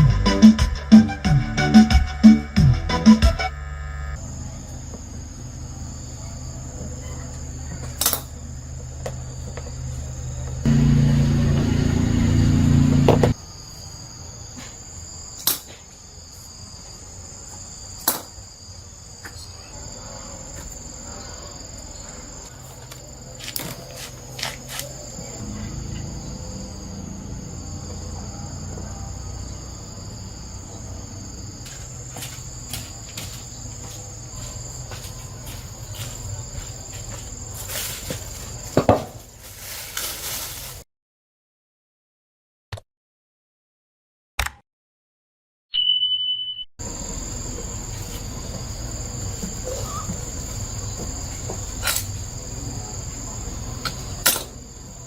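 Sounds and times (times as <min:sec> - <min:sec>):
insects chirring: 0:01.6 - 0:40.8, 0:46.8 - 0:55.0
loud low sound: 0:10.7 - 0:13.3.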